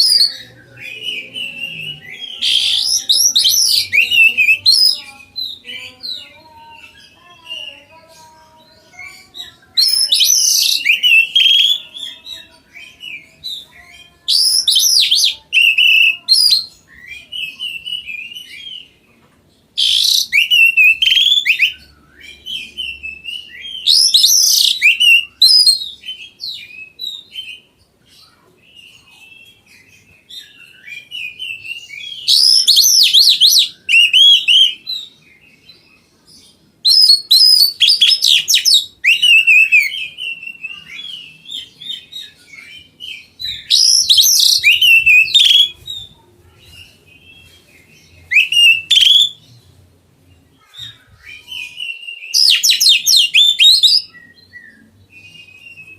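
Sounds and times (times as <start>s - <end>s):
magpie-robin singing whistles: 0.0s - 5.7s, 9.1s - 18.9s, 19.8s - 27.6s, 30.3s - 35.7s, 36.8s - 46.0s, 48.2s - 49.4s, 50.7s - 55.9s
soft bird chirps and twitters: 0.0s - 55.9s.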